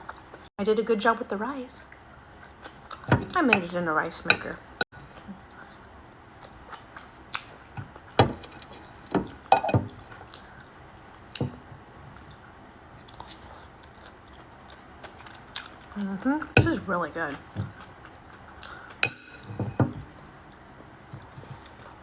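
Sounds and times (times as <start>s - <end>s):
person chewing: 2.3s - 3.1s, 5.0s - 8.2s, 12.1s - 16.6s, 17.3s - 22.0s.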